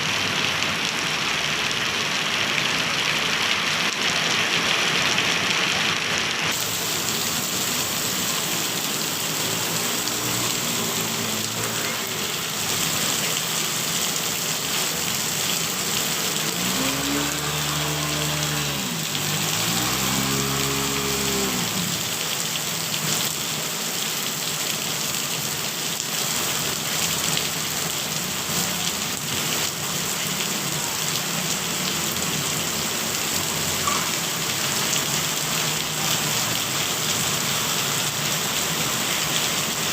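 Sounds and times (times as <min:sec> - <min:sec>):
heavy rain falling: 0:00.0 - 0:39.9
engine revving: 0:07.4 - 0:12.0, 0:16.3 - 0:22.2.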